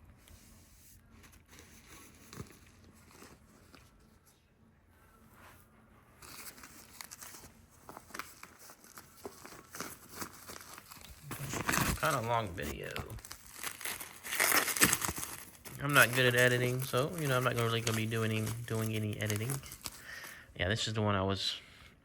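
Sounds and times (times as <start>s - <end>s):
packaging crinkling: 6.2s - 20.4s.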